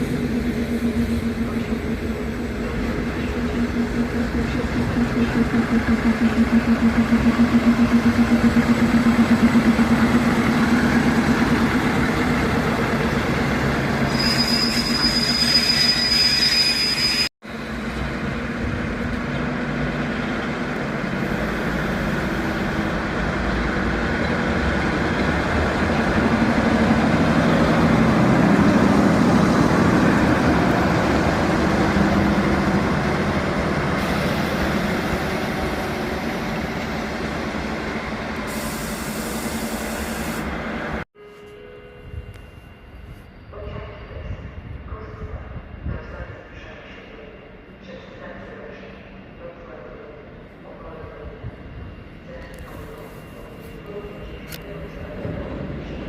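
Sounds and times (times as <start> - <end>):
diesel locomotive engine humming: 0.0 - 14.2, 17.4 - 56.0
train wheel squeal: 14.0 - 17.3.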